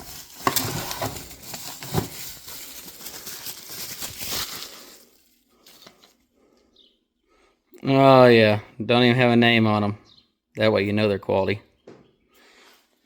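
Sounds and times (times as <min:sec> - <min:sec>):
cardboard box rustling and scraping: 0:00.0 - 0:04.8.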